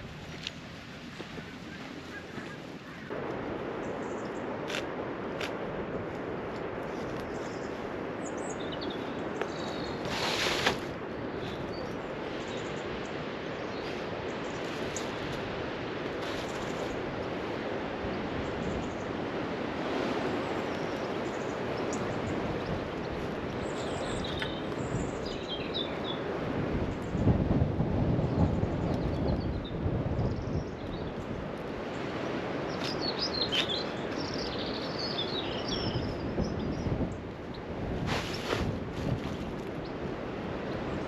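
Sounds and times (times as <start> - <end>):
small birds chirping: 6.9 - 10.6, 20.4 - 26.3, 32.7 - 37.7.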